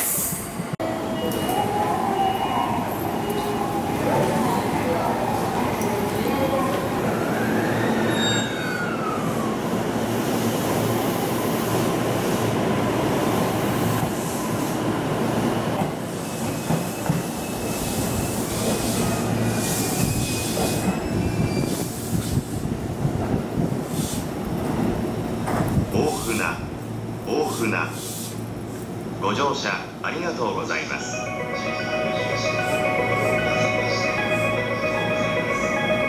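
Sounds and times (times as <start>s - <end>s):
brake and wheel squeal: 8.1s - 8.9s
train wheels rumbling on rails: 10.1s - 26.9s.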